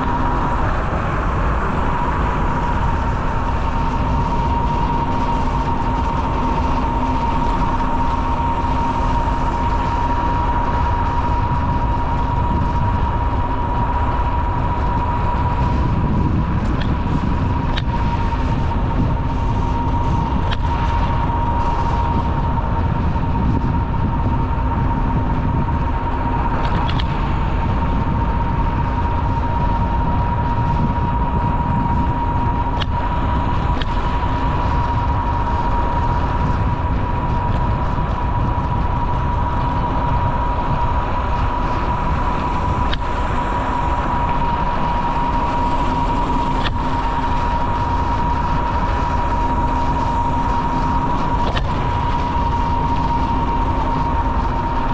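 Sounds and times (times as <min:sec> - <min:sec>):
bicycle tyres rumbling: 0:00.0 - 0:54.9
high whine: 0:00.0 - 0:54.9
sharp clicks: 0:20.4 - 0:20.8, 0:26.6 - 0:27.2, 0:42.8 - 0:43.2, 0:46.5 - 0:47.0, 0:51.4 - 0:51.8.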